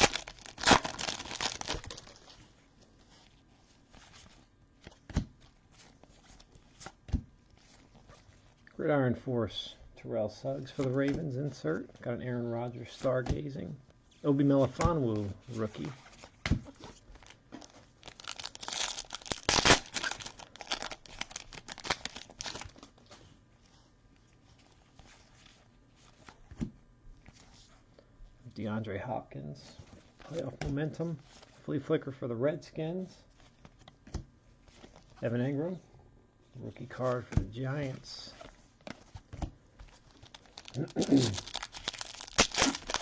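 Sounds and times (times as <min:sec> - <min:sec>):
wrapper tearing and crinkling: 0:00.0 - 0:02.4, 0:16.1 - 0:22.9, 0:39.9 - 0:43.0.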